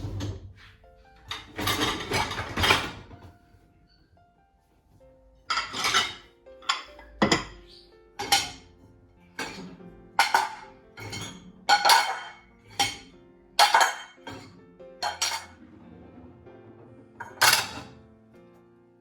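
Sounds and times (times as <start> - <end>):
soft background music: 0.0 - 19.0
kitchenware clinking: 1.3 - 4.1, 5.5 - 15.7, 17.2 - 18.0.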